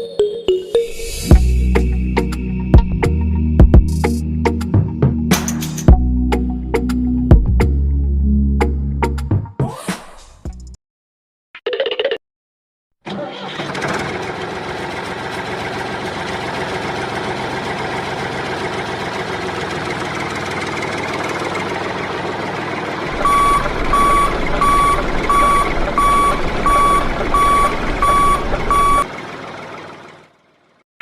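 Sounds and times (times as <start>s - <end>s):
tractor engine running: 13.1s - 30.8s
reversing alarm beeping: 23.1s - 29.1s.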